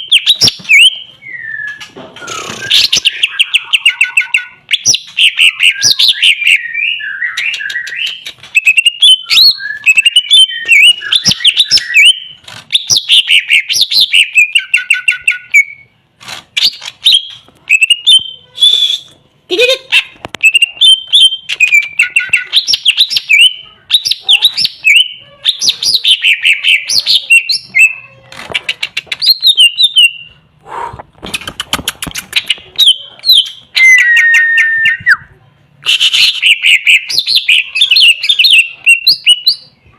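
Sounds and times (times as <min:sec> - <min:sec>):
bird singing chirps and whistles: 0:00.0 - 0:15.9, 0:20.4 - 0:28.0, 0:29.2 - 0:30.3, 0:32.4 - 0:35.3, 0:36.0 - 0:39.7.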